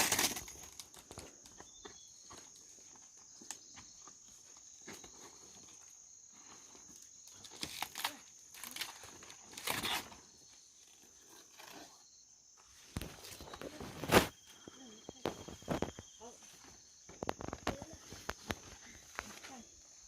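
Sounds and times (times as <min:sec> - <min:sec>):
rustling and crunching: 0:00.0 - 0:01.5, 0:12.8 - 0:19.8
high insect drone: 0:00.0 - 0:20.0.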